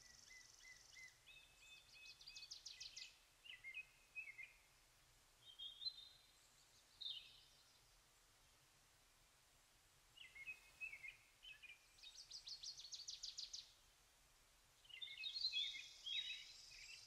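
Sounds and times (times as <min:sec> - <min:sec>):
birds chirping faintly: 0:00.0 - 0:17.0
whistled bird notes: 0:10.2 - 0:13.7, 0:14.8 - 0:17.0.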